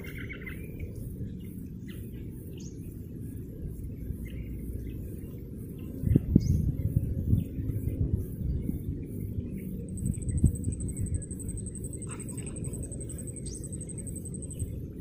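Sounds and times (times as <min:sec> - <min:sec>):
low rumble: 0:00.0 - 0:15.0
bird chirps: 0:03.9 - 0:15.0.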